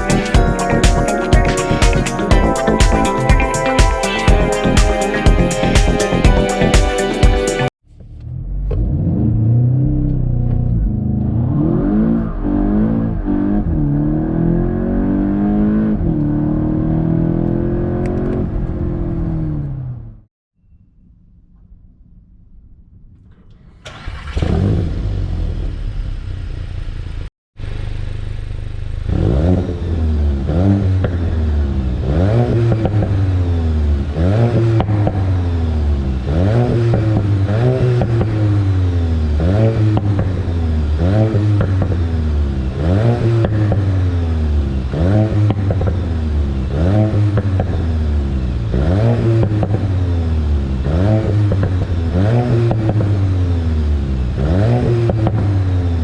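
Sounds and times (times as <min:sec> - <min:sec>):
car engine revving: 0:07.6 - 0:20.1, 0:23.8 - 0:28.0, 0:28.6 - 0:56.0
car engine idling: 0:23.4 - 0:30.4.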